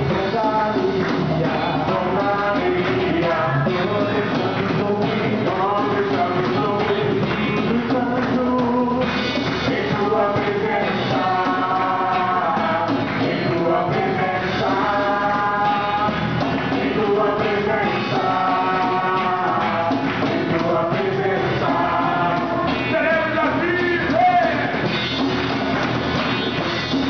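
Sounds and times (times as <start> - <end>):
worship song with rock band: 0.0 - 27.0
voices singing long notes: 8.4 - 24.9.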